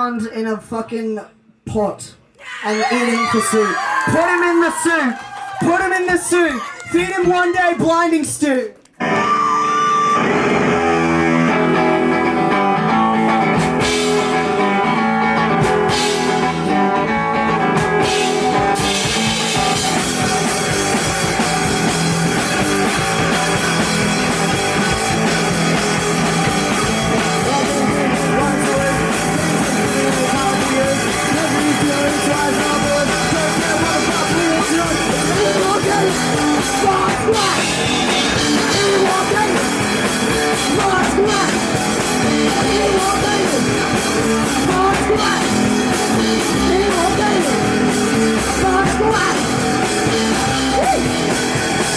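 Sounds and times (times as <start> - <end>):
rock guitar: 8.8 - 51.9
drums and cymbals: 10.8 - 51.9.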